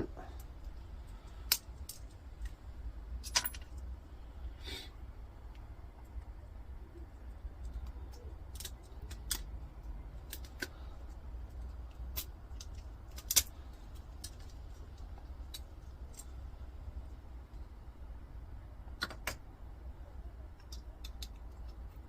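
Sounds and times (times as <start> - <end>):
low steady hum: 0.0 - 22.0
metal parts and tools clicking: 3.2 - 3.9, 7.2 - 16.4, 20.5 - 22.0.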